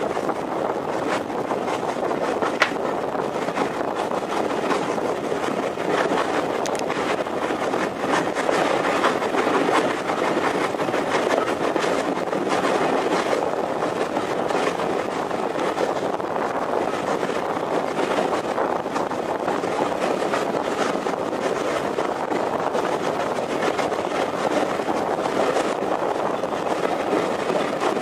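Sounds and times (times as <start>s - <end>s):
train wheels on rails: 0.0s - 28.0s
sharp clicks and knocks: 2.4s - 2.8s.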